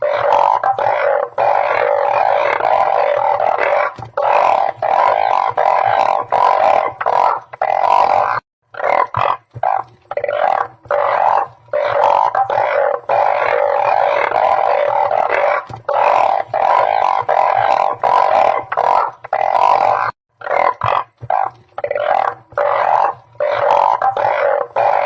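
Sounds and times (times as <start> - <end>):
frogs calling: 0.0 - 25.0.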